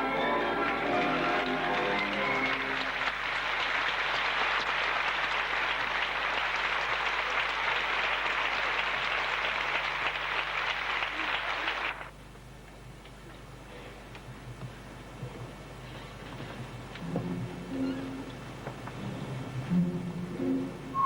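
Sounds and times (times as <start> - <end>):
audience applauding: 0.1 - 12.2.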